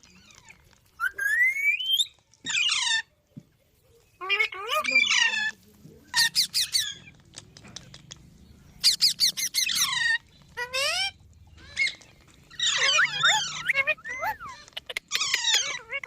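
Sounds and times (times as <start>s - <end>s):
parrot squawking: 4.2s - 7.0s, 8.8s - 16.0s.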